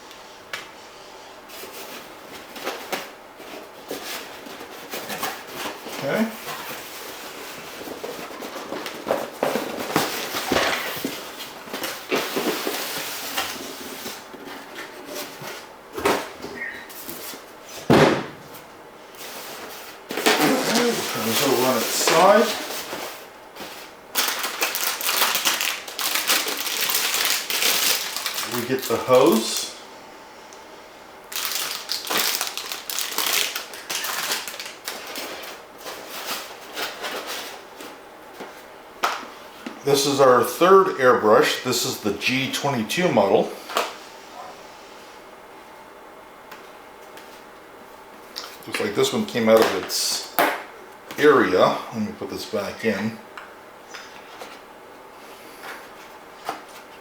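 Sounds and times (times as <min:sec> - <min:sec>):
packaging rustling and crinkling: 0:01.6 - 0:16.3, 0:19.2 - 0:29.6, 0:31.3 - 0:38.6
box and parts rustling and knocking: 0:01.8 - 0:18.5.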